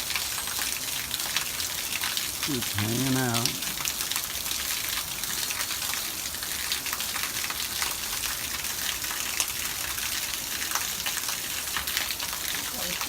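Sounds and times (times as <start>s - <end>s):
running water hiss: 0.0s - 6.9s
small crackling splashes: 0.0s - 13.0s.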